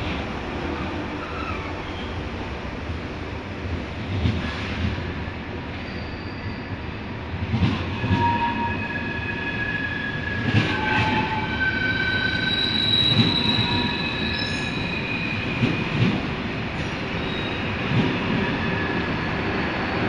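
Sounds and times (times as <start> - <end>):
train rumble: 0.0 - 20.0
train wheels squealing: 5.7 - 7.1, 7.8 - 16.0, 16.8 - 20.0.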